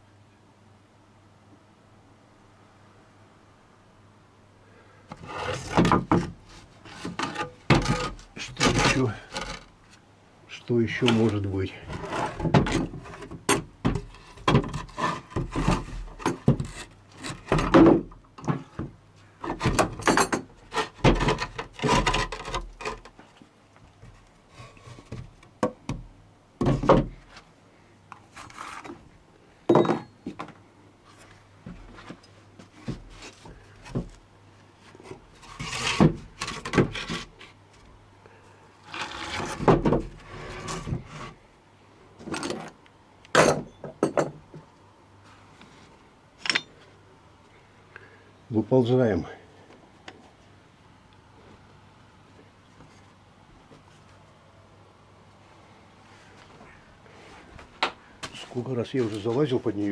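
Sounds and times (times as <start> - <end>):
faint steady hum: 0.0 - 59.9
tools scraping and clunking: 5.1 - 10.0, 10.9 - 23.4, 28.2 - 29.1, 29.7 - 34.2, 34.8 - 37.6, 38.8 - 41.4, 42.2 - 42.8, 45.6 - 46.9.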